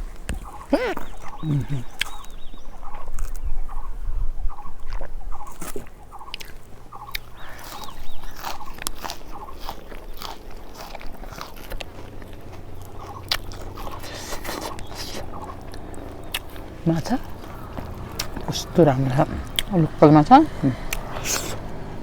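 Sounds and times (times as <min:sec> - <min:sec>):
close-up chewing: 0:00.0 - 0:22.0
wet mouth clicks and smacks: 0:04.8 - 0:16.7, 0:19.4 - 0:19.8, 0:20.9 - 0:21.7.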